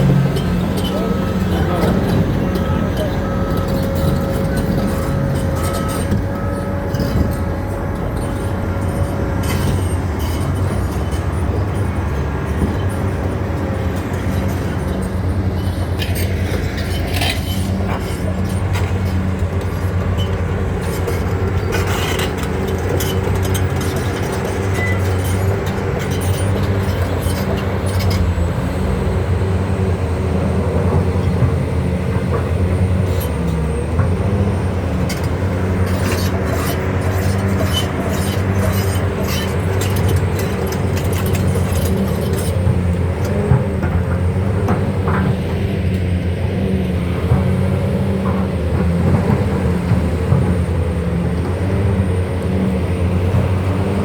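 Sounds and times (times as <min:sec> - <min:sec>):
excavator diesel engine running: 0:00.0 - 0:54.0
clanks and knocks: 0:30.8 - 0:46.1.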